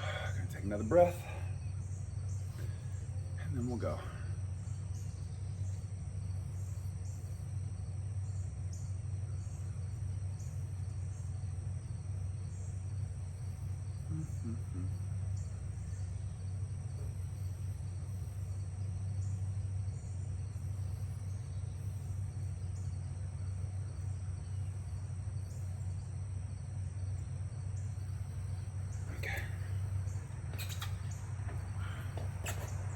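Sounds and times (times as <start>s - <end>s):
crickets chirping: 0.0s - 32.9s
low hum: 0.0s - 32.9s
faint voice: 14.1s - 15.0s, 29.1s - 29.8s.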